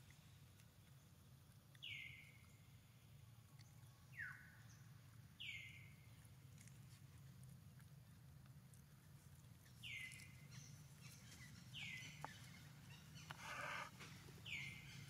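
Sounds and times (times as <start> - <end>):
scratchy rustle: 13.2 - 14.1.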